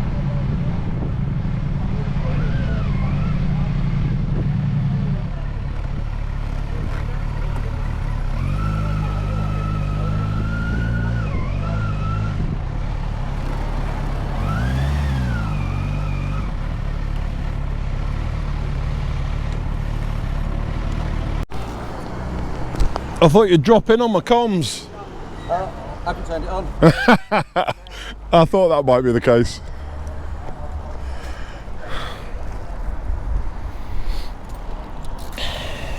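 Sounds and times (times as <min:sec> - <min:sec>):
motorcycle engine running: 0:00.0 - 0:10.2, 0:12.8 - 0:15.7.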